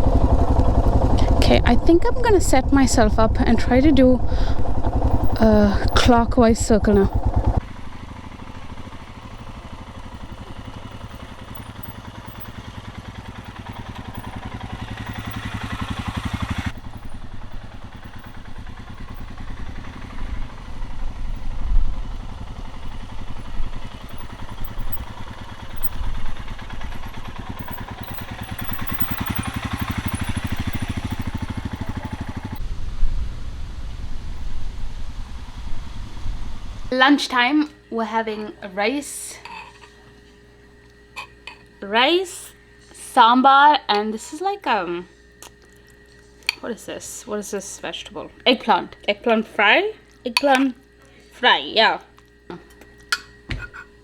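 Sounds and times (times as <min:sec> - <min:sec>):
motorcycle engine at low speed: 0:00.0 - 0:37.0, 0:48.1 - 0:54.0.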